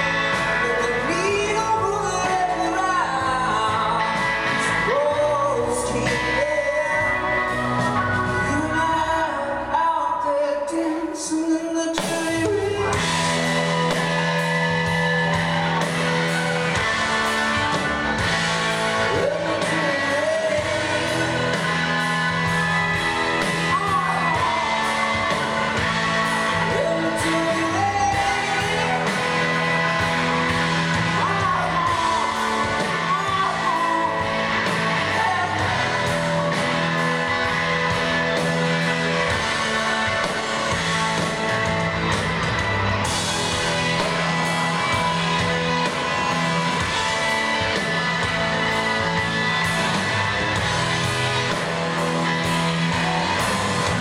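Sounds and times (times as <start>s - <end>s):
lead electric guitar: 0.0s - 54.0s
sustained guitar chords: 12.4s - 54.0s.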